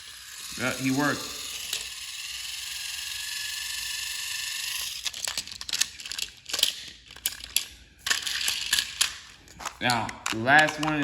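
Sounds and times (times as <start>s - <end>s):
toy train motor gear whine: 0.0s - 7.3s
plastic toy clicks and rattles: 0.0s - 11.0s.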